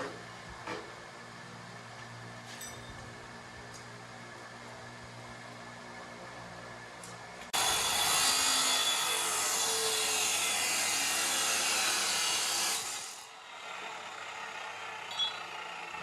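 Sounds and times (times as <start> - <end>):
power tool high-pitched hissing: 7.6 - 13.2.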